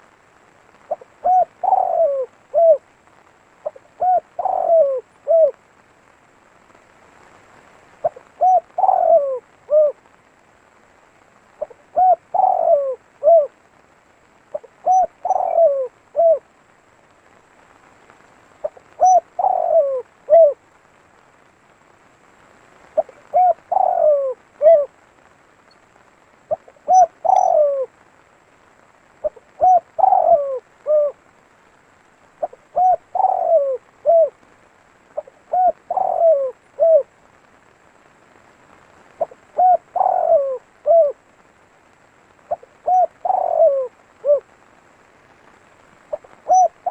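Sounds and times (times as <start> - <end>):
dove cooing: 0.8 - 3.0, 3.6 - 5.6, 8.0 - 10.1, 11.6 - 13.6, 14.5 - 16.5, 18.6 - 20.7, 22.9 - 25.0, 26.0 - 28.0, 29.2 - 31.2, 32.4 - 34.5, 35.1 - 37.2, 39.1 - 41.4, 42.5 - 44.6, 46.1 - 46.9.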